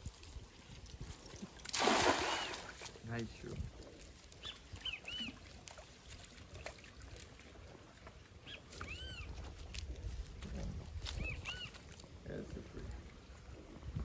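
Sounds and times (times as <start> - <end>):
bird chirping: 4.4 - 5.4.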